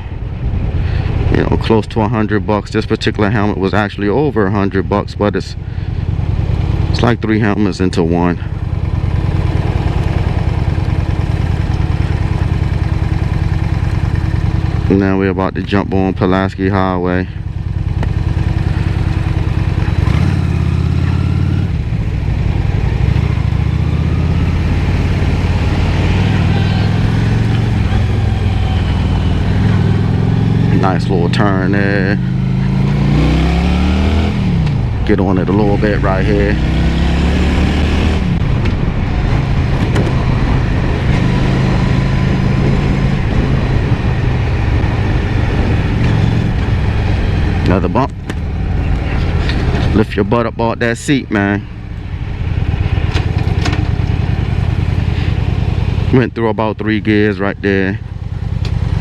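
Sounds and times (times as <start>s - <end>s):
motorcycle engine under throttle: 3.2s - 59.0s
wind noise: 36.6s - 55.4s.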